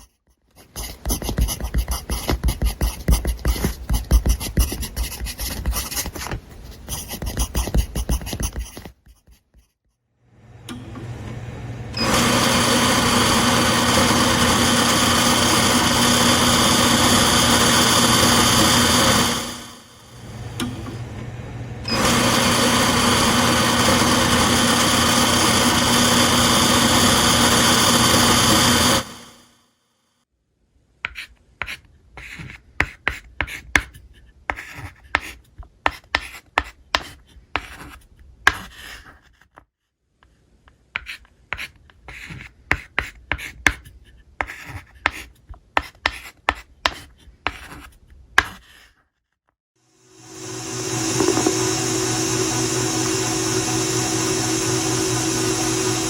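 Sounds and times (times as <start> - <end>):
scratching and tapping: 0.0 - 9.8
small electric motor humming: 11.9 - 21.1, 21.8 - 29.4, 49.9 - 56.0.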